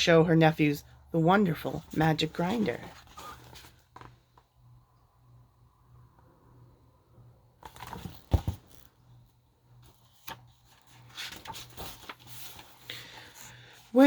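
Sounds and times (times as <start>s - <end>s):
faint low hum: 0.0s - 14.0s
book page rustling: 1.7s - 4.4s, 7.6s - 8.9s, 9.8s - 14.0s.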